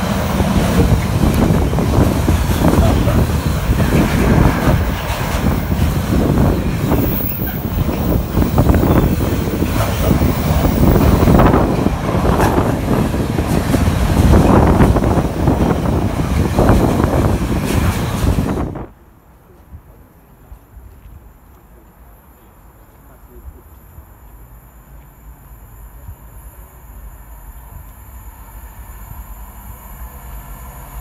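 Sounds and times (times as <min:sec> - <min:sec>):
train wagons clattering: 0:00.0 - 0:18.9
freight train wheels rumbling: 0:00.0 - 0:31.0.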